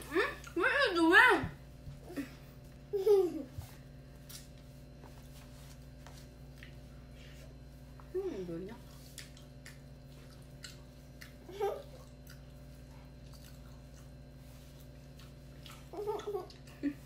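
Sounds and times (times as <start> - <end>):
steady low hum: 0.0 - 17.0
person chewing food: 8.9 - 17.0.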